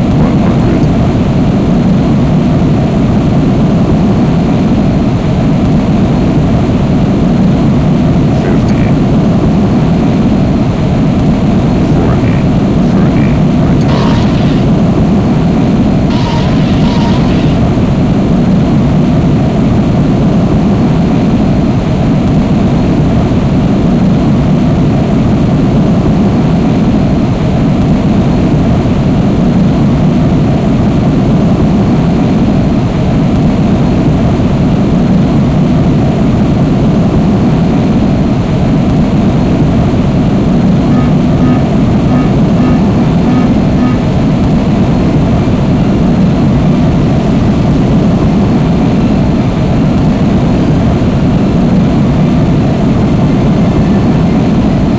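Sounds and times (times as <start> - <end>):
jet engine roar: 8.1 - 18.7
faint high beeps: 16.1 - 17.7, 40.9 - 44.0.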